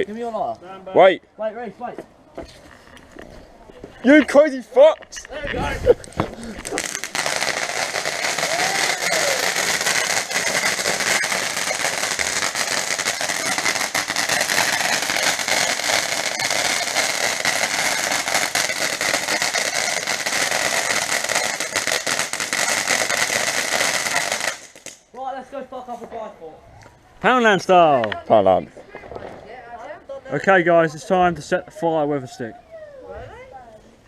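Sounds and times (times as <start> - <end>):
firework hissing and crackling: 5.1 - 25.1.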